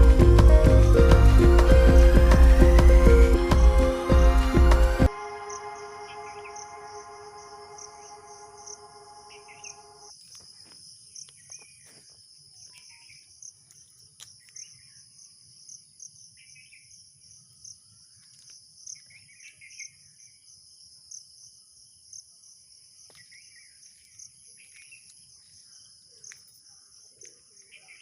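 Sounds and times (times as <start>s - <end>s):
birds chirping: 0.0s - 10.1s
high-pitched insect chorus: 5.1s - 27.7s.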